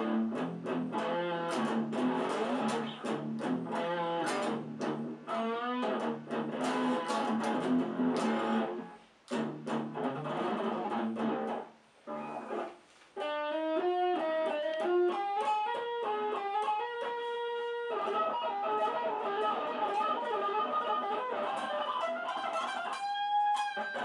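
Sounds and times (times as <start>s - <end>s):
electric guitar melody line: 0.0s - 24.0s
electric guitar strummed chords: 0.0s - 24.0s.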